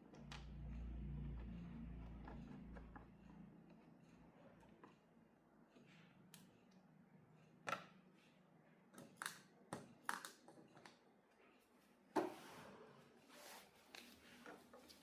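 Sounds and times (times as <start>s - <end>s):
faint low hum: 0.0s - 7.5s.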